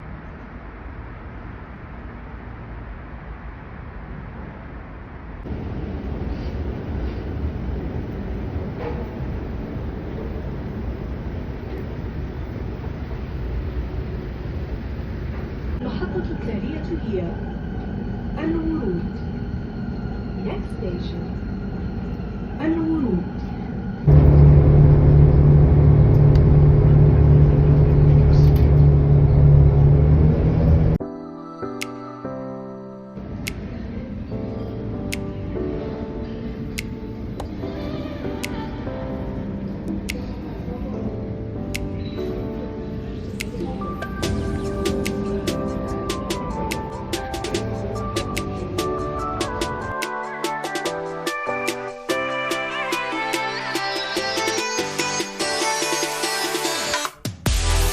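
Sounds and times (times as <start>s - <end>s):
train rumbling: 0.0s - 31.0s, 33.2s - 50.0s
low motor hum: 23.4s - 31.0s.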